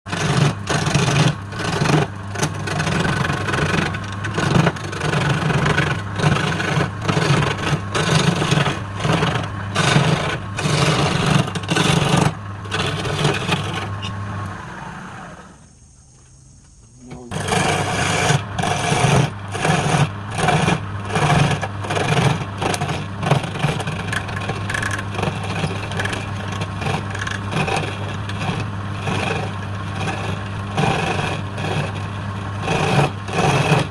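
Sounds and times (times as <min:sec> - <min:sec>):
turning tool cutting spinning wood: 0:00.0 - 0:15.6, 0:17.1 - 0:33.9
lathe motor hum: 0:00.1 - 0:15.7, 0:17.1 - 0:33.9.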